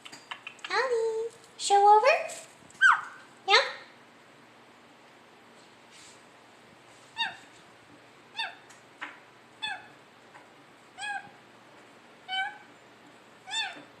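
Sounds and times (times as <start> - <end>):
parrot calling: 2.8 - 3.8, 7.2 - 7.5, 8.3 - 8.7, 9.6 - 10.0, 11.0 - 11.4, 12.3 - 12.7, 13.4 - 13.9.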